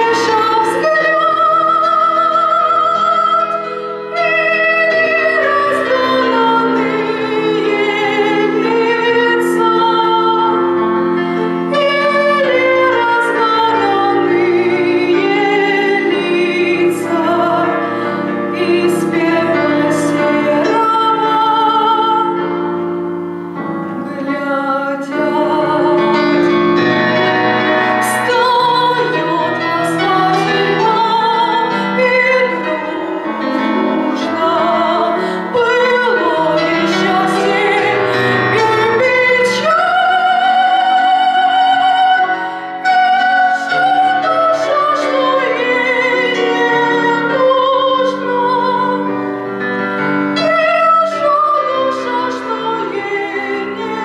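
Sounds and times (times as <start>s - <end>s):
piano accompaniment: 0.0s - 54.0s
woman singing classically: 24.0s - 26.5s.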